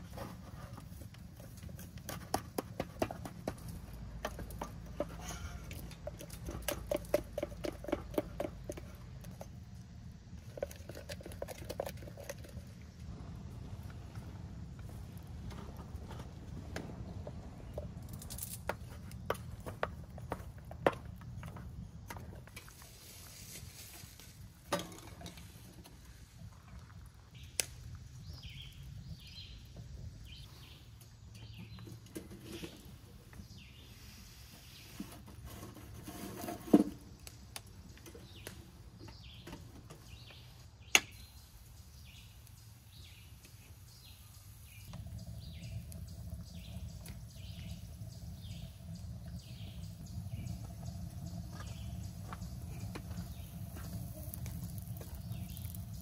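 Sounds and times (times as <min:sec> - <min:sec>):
birds chirping: 0:27.3 - 0:34.0, 0:37.2 - 0:56.0.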